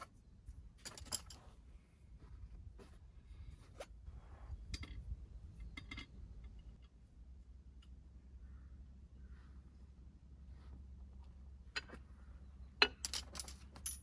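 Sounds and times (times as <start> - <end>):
soft rustle: 0.0 - 5.6, 9.2 - 12.4.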